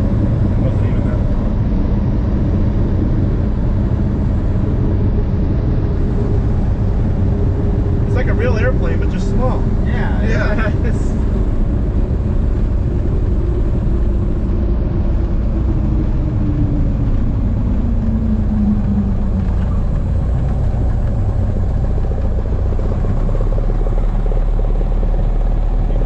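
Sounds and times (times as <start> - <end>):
plane engine and propeller drone: 0.0 - 26.0.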